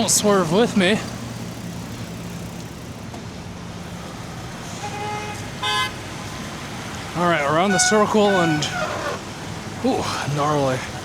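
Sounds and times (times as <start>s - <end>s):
vehicle engine low hum: 0.0s - 9.8s
road traffic: 0.0s - 11.0s
car horn: 4.7s - 9.3s.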